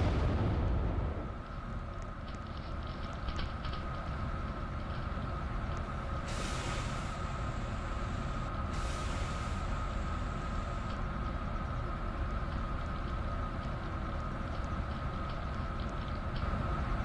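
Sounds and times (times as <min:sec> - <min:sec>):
washing machine hum and whine: 0:00.0 - 0:17.0
hiss: 0:06.1 - 0:11.1.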